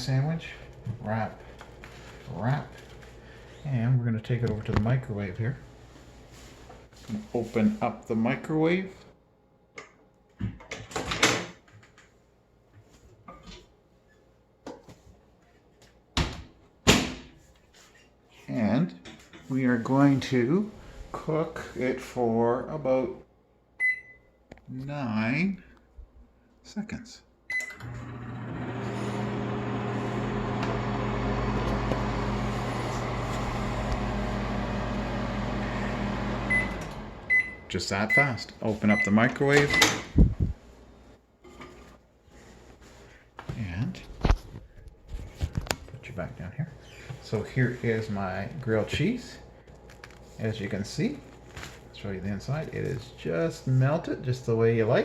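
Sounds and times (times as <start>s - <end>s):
microwave beep: 23.8s - 24.4s, 27.5s - 28.0s, 36.4s - 40.0s
microwave oven humming: 27.5s - 37.8s.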